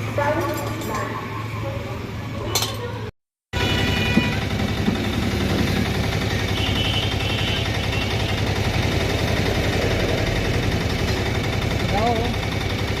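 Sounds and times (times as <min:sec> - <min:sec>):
single-cylinder engine idling: 0:03.6 - 0:13.0.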